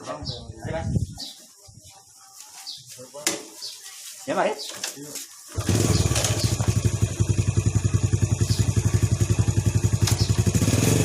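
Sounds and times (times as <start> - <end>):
small engine idling: 5.5 - 11.0.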